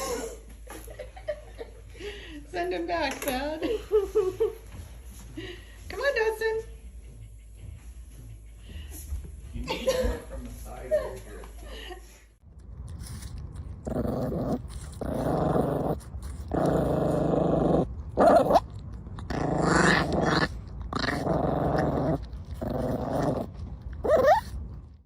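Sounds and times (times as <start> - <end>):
dog growling: 12.9 - 24.8
dog yelping: 24.0 - 24.5.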